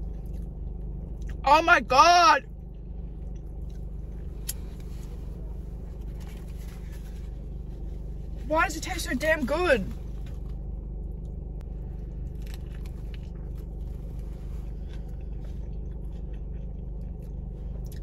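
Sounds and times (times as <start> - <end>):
person chewing a burger: 0.0 - 1.4, 2.4 - 8.4, 9.9 - 18.0
low hum inside a car: 0.0 - 18.0.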